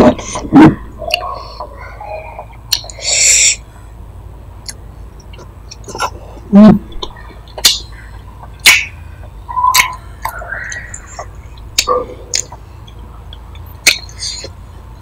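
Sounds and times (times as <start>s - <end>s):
wet lip smacks: 2.7s - 3.3s, 9.7s - 12.6s.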